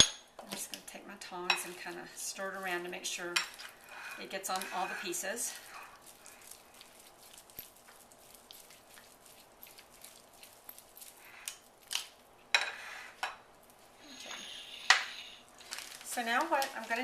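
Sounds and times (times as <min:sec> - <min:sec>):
tongs clicking and scraping in bowl: 0:00.5 - 0:13.8.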